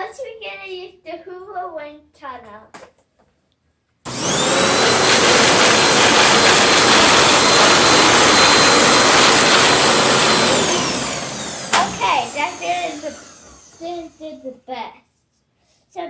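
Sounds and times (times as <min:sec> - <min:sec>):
vacuum cleaner motor running: 0:04.1 - 0:14.2.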